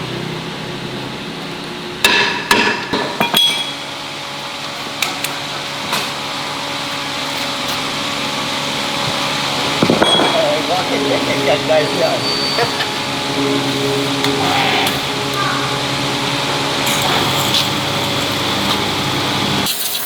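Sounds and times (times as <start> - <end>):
steady background hum: 9.3 - 19.7.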